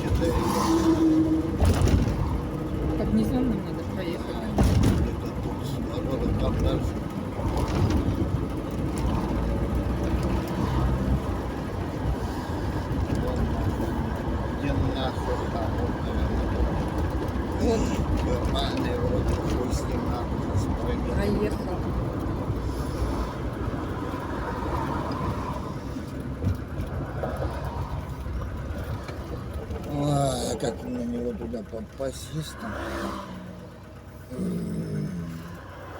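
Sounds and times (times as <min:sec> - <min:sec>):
car engine and road rumble: 0:00.0 - 0:35.9
thump: 0:04.6 - 0:05.1.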